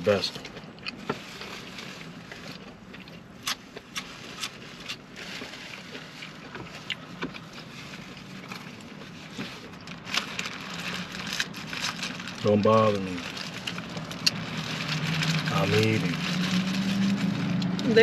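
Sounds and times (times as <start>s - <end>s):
person chewing food: 0.4s - 5.0s.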